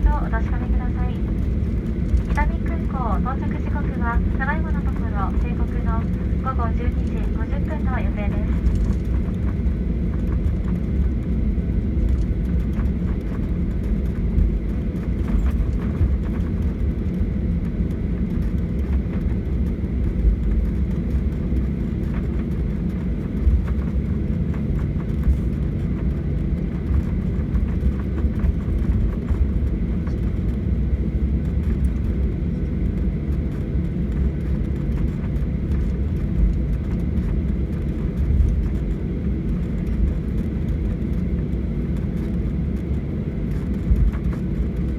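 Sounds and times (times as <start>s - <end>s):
faint clicks and rattles: 0.0s - 11.0s
jet engines rumbling: 0.0s - 44.9s.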